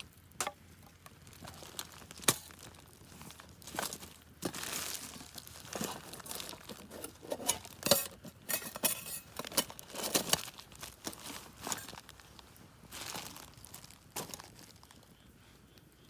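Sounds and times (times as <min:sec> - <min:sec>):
rustling and crinkling: 0:00.0 - 0:16.0.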